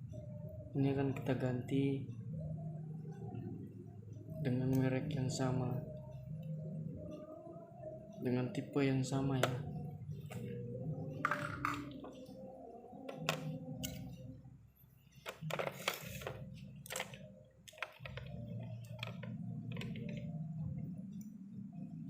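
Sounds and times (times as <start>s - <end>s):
steady low hum: 0.0s - 22.0s
clicks and taps of tools: 13.1s - 14.1s.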